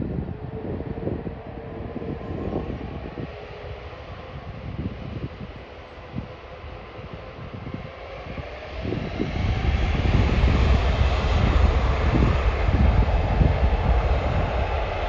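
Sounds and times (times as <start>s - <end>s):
jet engines spooling up: 7.0s - 15.0s.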